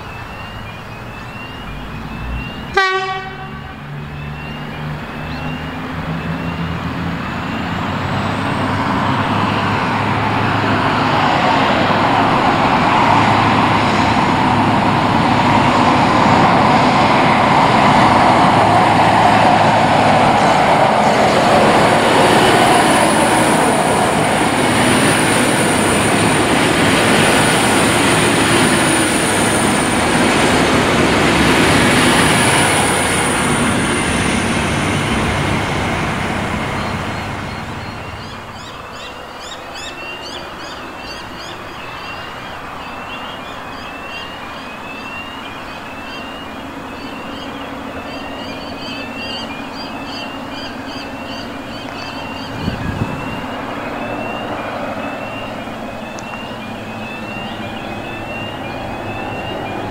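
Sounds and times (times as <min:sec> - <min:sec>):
bird chirping: 0:00.0 - 0:02.8, 0:03.9 - 0:07.7, 0:36.7 - 0:59.9
diesel train rumbling past: 0:00.0 - 0:59.9.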